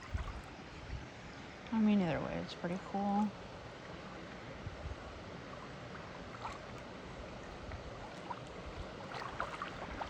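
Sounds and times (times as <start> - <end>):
creek water rushing: 0.0 - 1.6, 2.3 - 10.0.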